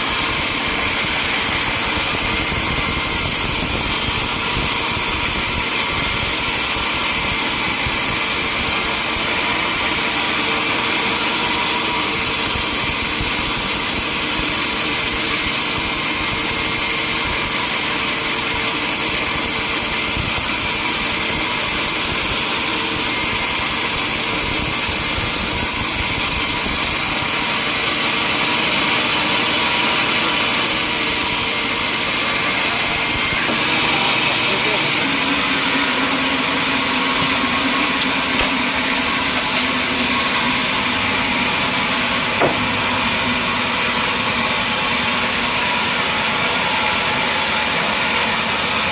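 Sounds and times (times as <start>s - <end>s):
saw cutting through wood: 0.0s - 48.9s
engine noise: 26.2s - 48.9s.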